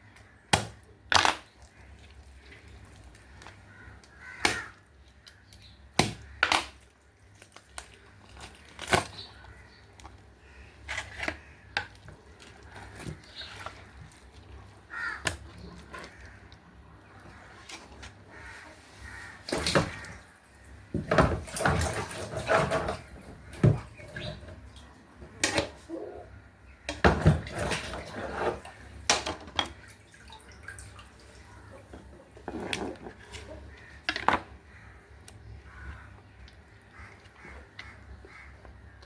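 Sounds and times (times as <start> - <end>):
kitchen knocks and clatter: 20.9 - 24.3, 26.9 - 28.5.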